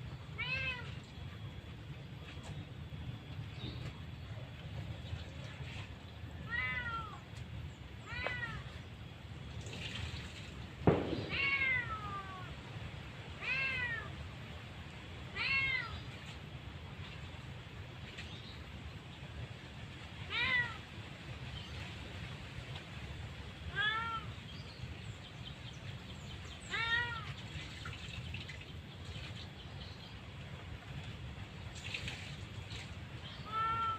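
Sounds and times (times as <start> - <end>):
steady low hum: 0.0 - 15.4
cat meowing: 0.4 - 1.0, 6.5 - 7.2, 8.1 - 8.7, 11.3 - 12.5, 13.4 - 14.1, 15.4 - 16.0, 20.3 - 20.8, 23.7 - 24.3, 33.4 - 33.9
sharp knock: 10.9 - 11.4.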